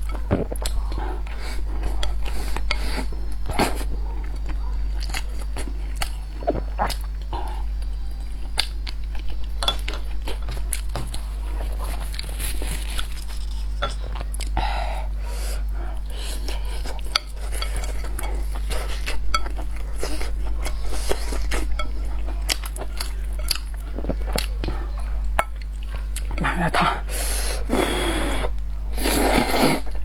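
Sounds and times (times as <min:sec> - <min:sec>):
chewing: 0:00.0 - 0:27.0
steady low hum: 0:00.0 - 0:30.0
utensils clinking against a bowl: 0:09.6 - 0:11.2, 0:11.9 - 0:14.3, 0:16.4 - 0:26.6.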